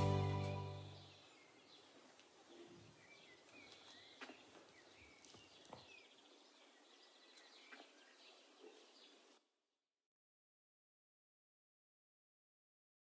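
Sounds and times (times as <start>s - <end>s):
faint birdsong: 0.0s - 9.5s.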